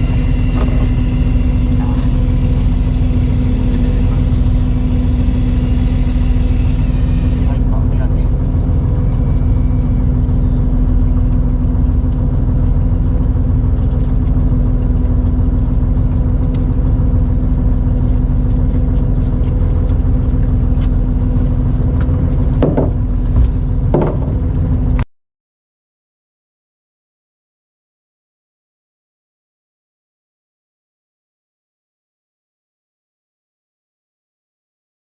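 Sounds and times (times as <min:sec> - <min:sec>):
boat engine rumbling: 0:00.0 - 0:25.0.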